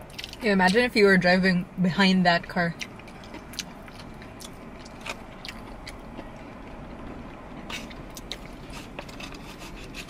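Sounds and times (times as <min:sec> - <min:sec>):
people chewing food: 0:00.0 - 0:00.4, 0:02.8 - 0:10.0.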